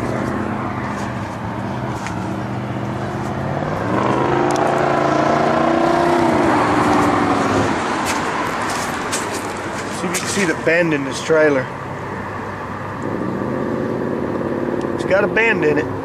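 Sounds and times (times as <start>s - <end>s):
vehicle engine revving: 0.0s - 10.6s, 13.0s - 15.6s.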